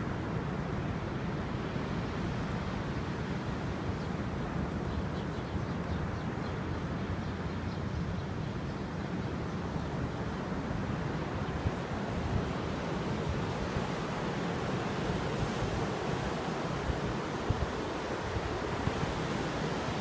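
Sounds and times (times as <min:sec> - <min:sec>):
wind on microphone: 0:08.0 - 0:20.0
sea waves: 0:09.4 - 0:20.0.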